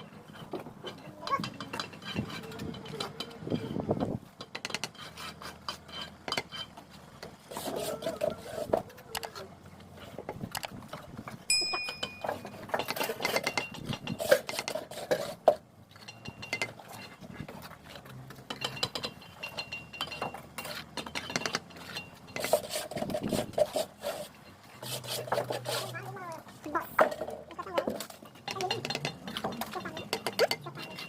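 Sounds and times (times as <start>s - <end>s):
trowel clinking against bricks: 0.0s - 9.5s, 11.5s - 26.1s, 26.7s - 31.0s
trowel scraping mortar: 4.6s - 10.2s, 12.2s - 19.5s, 20.2s - 26.2s.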